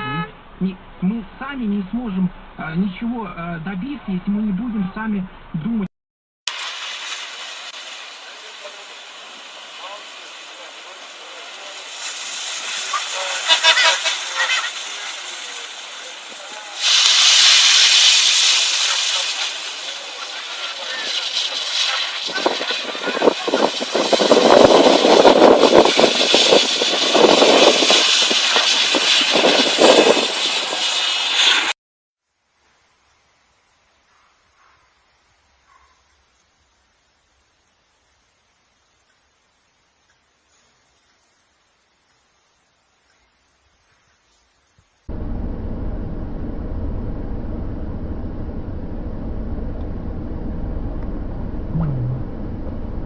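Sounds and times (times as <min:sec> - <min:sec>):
car engine and road noise: 0:00.0 - 0:05.8, 0:45.1 - 0:53.0
moving vehicle roar: 0:45.1 - 0:53.0
short falling tone: 0:45.1 - 0:53.0.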